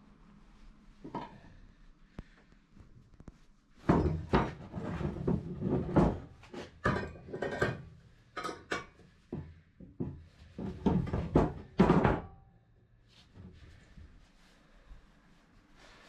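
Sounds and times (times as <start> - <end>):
hard objects clattering and knocking: 3.8 - 12.4.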